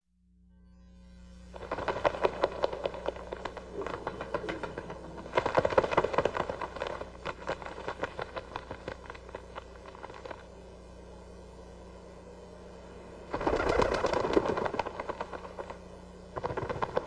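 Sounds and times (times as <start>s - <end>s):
steady low hum: 0.0s - 17.0s
birds' wings flapping: 1.5s - 10.7s, 13.2s - 17.0s.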